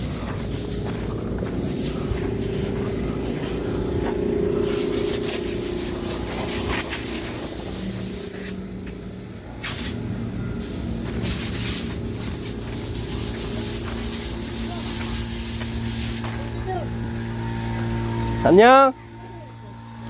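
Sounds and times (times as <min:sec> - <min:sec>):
motor humming: 0:00.0 - 0:20.0
short hissing bursts: 0:04.6 - 0:08.7, 0:09.5 - 0:18.3.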